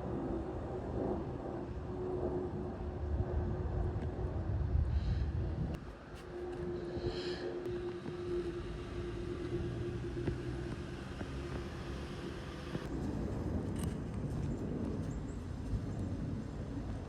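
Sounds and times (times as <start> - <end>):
steady hum: 0.0 - 13.0
engine rumbling: 0.0 - 17.0.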